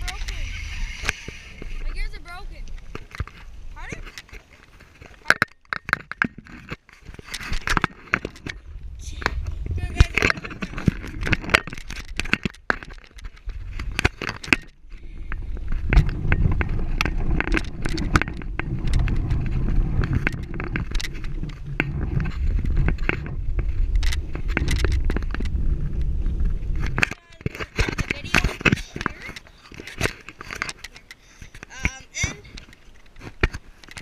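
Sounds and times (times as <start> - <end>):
rattling clicks and scrapes: 0.0 - 34.0
low rumble on microphone: 8.2 - 12.3, 14.8 - 29.3.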